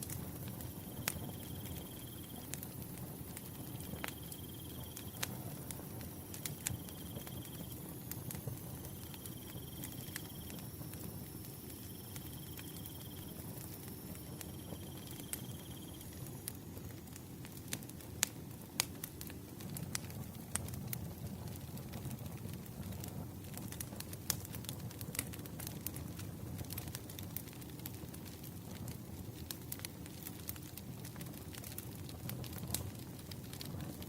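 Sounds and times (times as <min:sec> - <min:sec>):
firewood crackling and popping: 0:00.0 - 0:34.0
cricket chirping: 0:00.8 - 0:02.4, 0:03.7 - 0:05.2, 0:06.5 - 0:07.8, 0:08.9 - 0:16.2.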